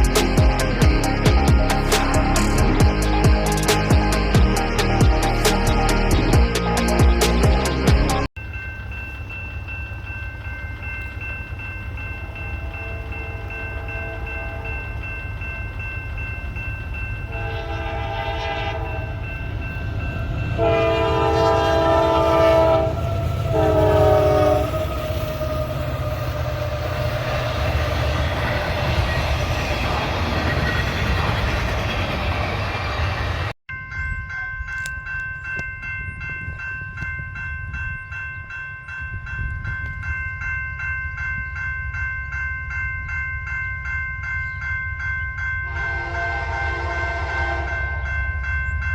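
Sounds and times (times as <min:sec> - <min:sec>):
rumble of moving train: 0:00.0 - 0:48.9
locomotive air horn blasts: 0:12.6 - 0:14.8, 0:17.3 - 0:19.2, 0:20.6 - 0:27.3, 0:45.7 - 0:48.0.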